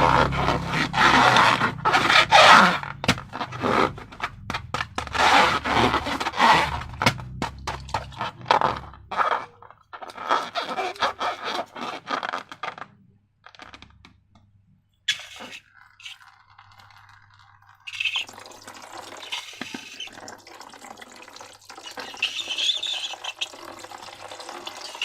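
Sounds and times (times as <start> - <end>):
slime scraping and crackling: 0.0 - 13.9.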